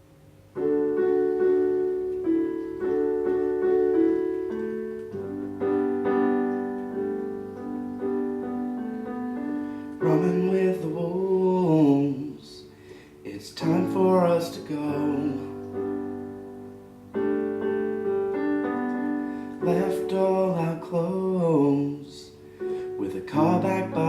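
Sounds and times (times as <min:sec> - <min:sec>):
solo piano chords: 0:00.0 - 0:24.0
man singing: 0:10.0 - 0:12.7, 0:13.3 - 0:15.6, 0:19.6 - 0:22.4, 0:23.0 - 0:24.0.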